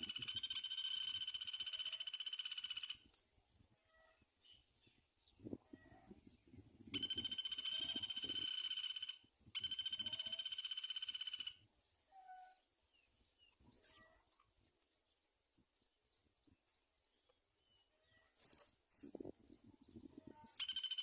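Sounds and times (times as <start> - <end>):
animal pulsing trill: 7.0 - 11.6.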